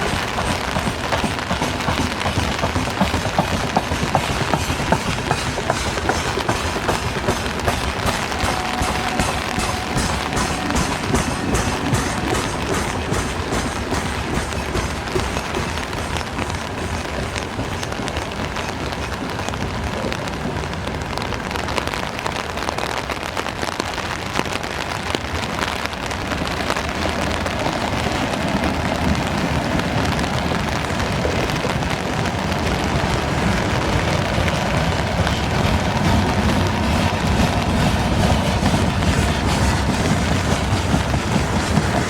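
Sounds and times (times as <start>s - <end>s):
wagons clicking and rattling: 0.0s - 19.3s, 34.7s - 42.0s
train wagons rolling on rails: 0.0s - 42.0s.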